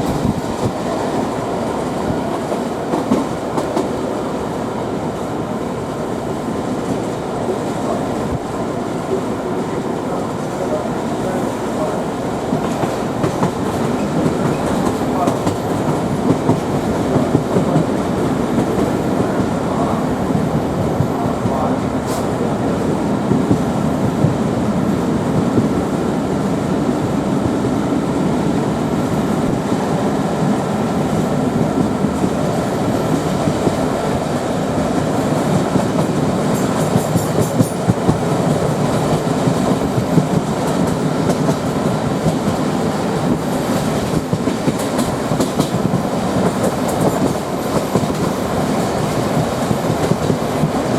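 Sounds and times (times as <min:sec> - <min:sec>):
train rumble: 0:00.0 - 0:50.9
train wheels clattering over rail joints: 0:11.8 - 0:19.6, 0:31.6 - 0:50.9.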